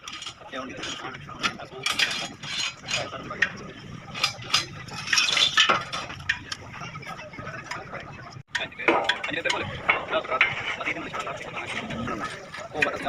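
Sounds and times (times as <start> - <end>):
steel pieces clanking together: 0.0 - 6.6.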